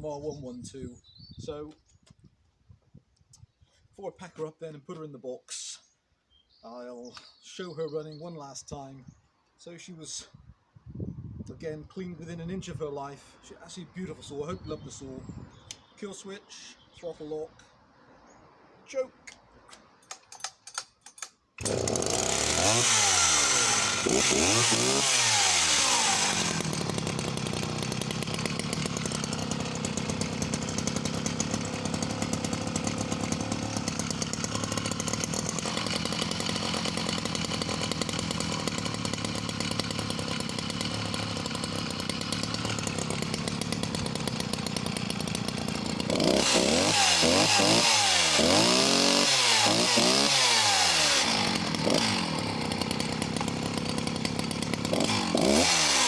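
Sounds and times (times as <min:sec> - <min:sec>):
chainsaw starter cord pulls: 0:19.3 - 0:56.0
chainsaw engine revving and idling: 0:21.6 - 0:56.0.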